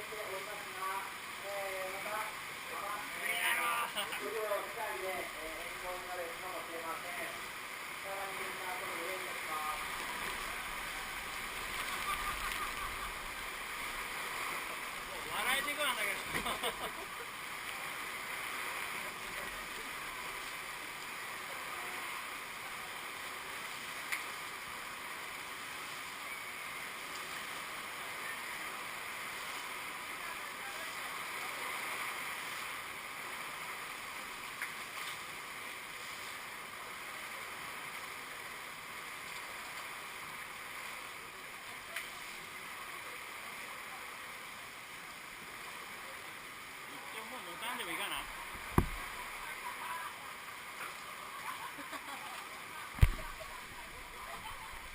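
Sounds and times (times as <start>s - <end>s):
heavy rain hissing: 0.0s - 54.9s
sharp taps: 48.7s - 49.0s.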